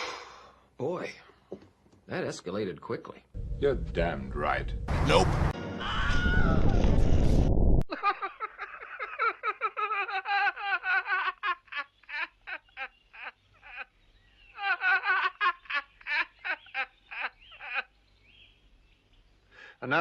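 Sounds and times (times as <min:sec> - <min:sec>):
rapid high-pitched laughter: 0:07.9 - 0:17.9.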